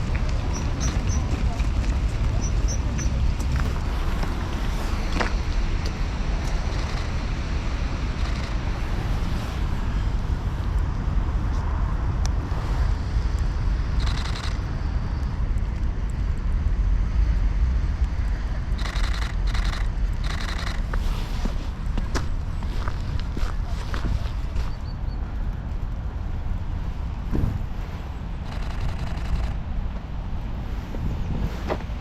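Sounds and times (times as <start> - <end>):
road traffic rumble: 0.0 - 32.0
faint clicks: 18.7 - 20.8, 28.4 - 29.6.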